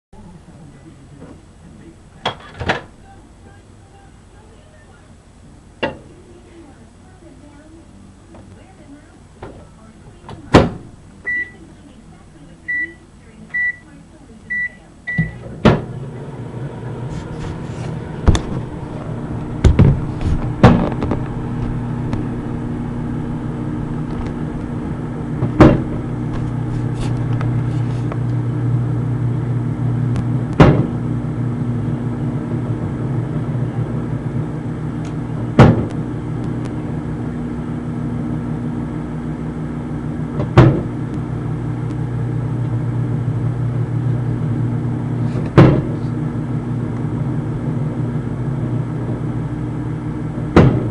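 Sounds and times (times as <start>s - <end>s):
microwave oven humming: 0.2s - 50.9s
knocks: 19.6s - 21.3s, 25.4s - 26.4s, 30.6s - 31.0s, 50.6s - 50.9s.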